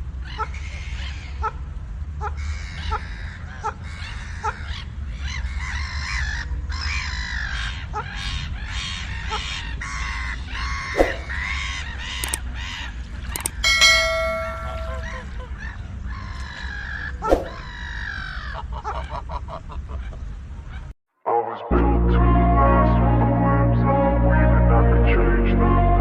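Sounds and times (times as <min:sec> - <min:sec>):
steady pitched tone: 0:13.5 - 0:15.2.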